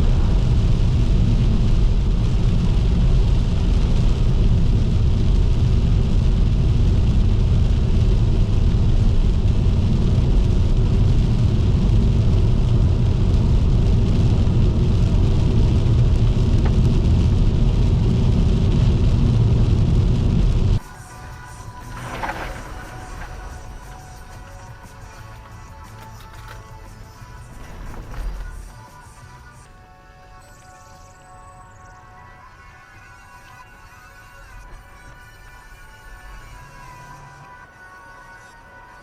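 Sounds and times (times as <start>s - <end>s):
rain hiss: 0.0s - 29.6s
tyres and engine rumbling: 0.0s - 39.0s.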